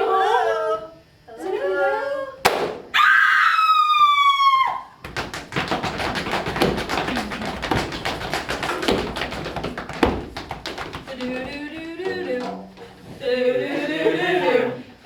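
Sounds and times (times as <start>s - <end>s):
louder knocks: 5.0s - 12.8s.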